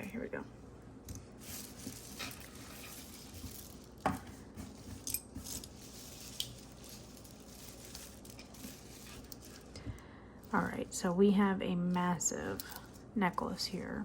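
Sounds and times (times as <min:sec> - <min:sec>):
necklace beads clinking: 0:01.3 - 0:04.2, 0:04.8 - 0:09.8, 0:12.0 - 0:13.1.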